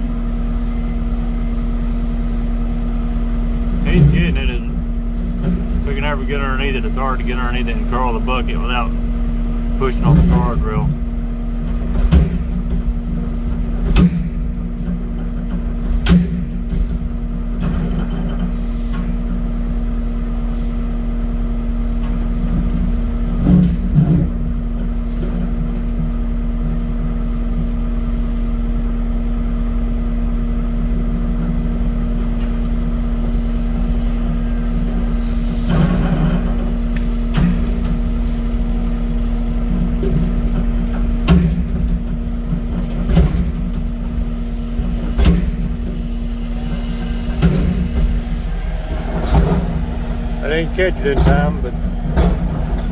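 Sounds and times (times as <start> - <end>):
diesel engine running under load: 0.0 - 52.9
excavator bucket scraping concrete: 35.0 - 52.9.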